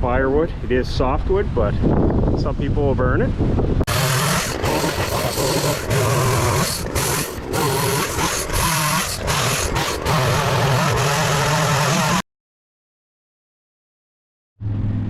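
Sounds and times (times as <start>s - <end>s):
chainsaw cutting wood: 3.9s - 12.2s.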